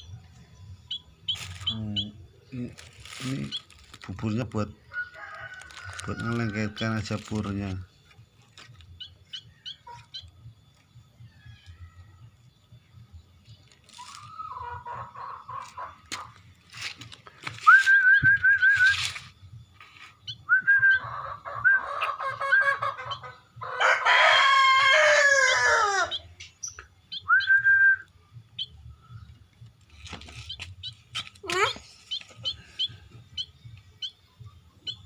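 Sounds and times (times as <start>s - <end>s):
chick begging chirps: 0.0s - 12.8s, 13.4s - 16.5s, 17.7s - 29.8s, 30.4s - 35.0s
rooster crowing: 4.9s - 6.8s, 23.6s - 26.3s.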